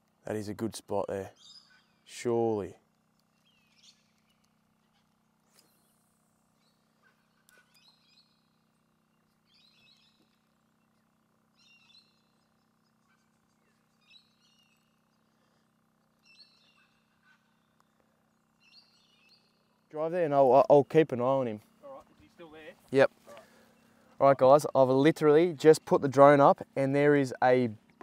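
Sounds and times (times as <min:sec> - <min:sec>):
faint steady hum: 0:00.0 - 0:28.0
faint chirping bird calls: 0:01.2 - 0:28.0.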